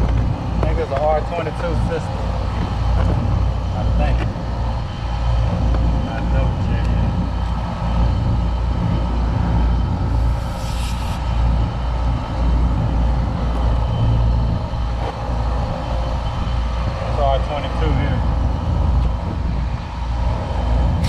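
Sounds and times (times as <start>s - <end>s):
brief hiss: 10.3s - 11.5s.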